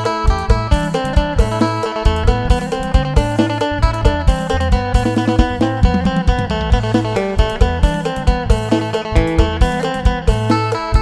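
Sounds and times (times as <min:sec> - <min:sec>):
bass line: 0:00.0 - 0:10.5
steady drum beat: 0:00.5 - 0:08.8
plucked lute melody: 0:02.2 - 0:10.1.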